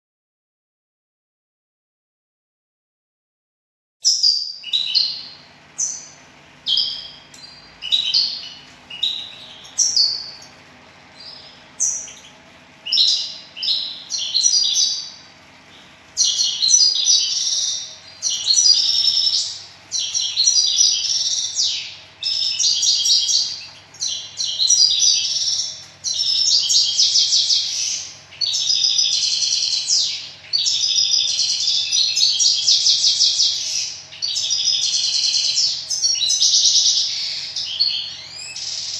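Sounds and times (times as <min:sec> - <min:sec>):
small birds chirping and singing: 0:04.0 - 0:38.9.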